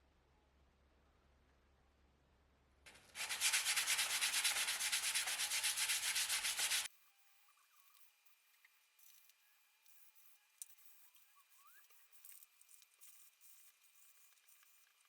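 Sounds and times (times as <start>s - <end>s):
hand sanding strokes: 2.9s - 6.9s.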